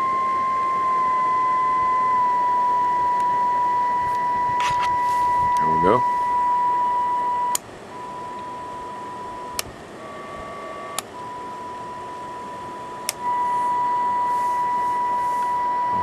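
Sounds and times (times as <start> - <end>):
steady high test tone: 0.0 - 16.0
switch clicks: 13.0 - 13.2.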